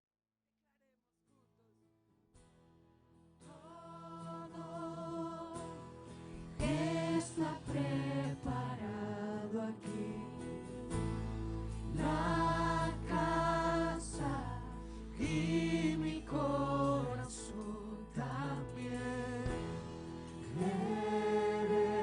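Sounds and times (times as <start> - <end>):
musical accompaniment: 5.2 - 22.0
person singing with vibrato: 11.9 - 22.0.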